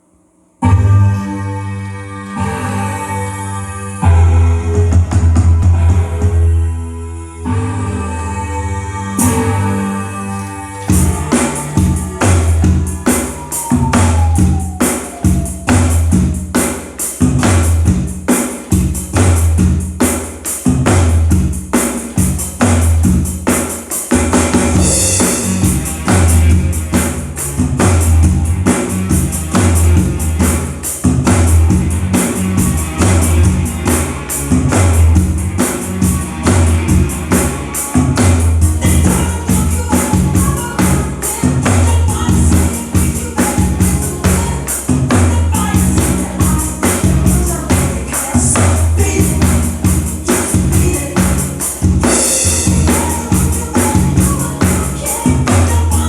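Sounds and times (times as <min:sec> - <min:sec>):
strong bass notes: 0:00.6 - 0:20.0, 0:24.2 - 0:56.0
drum kit beat: 0:07.9 - 0:56.0
dense high percussion: 0:10.8 - 0:20.0.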